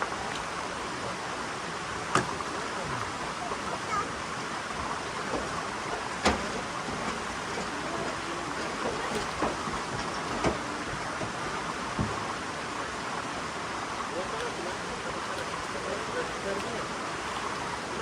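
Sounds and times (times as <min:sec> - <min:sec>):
falling water rushing: 0:00.0 - 0:18.0
sharp knocks: 0:06.2 - 0:07.6.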